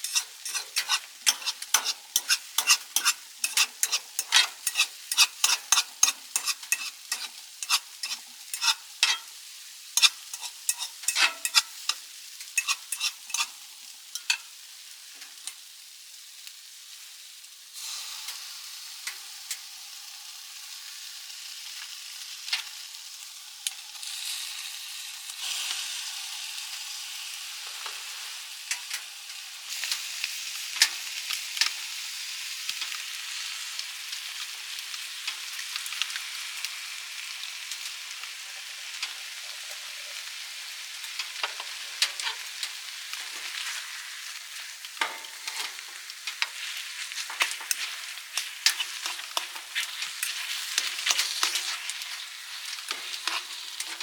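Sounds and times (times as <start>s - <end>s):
stirring clicks: 0.0s - 9.2s, 45.0s - 54.0s
food sizzling in a pan: 0.0s - 54.0s.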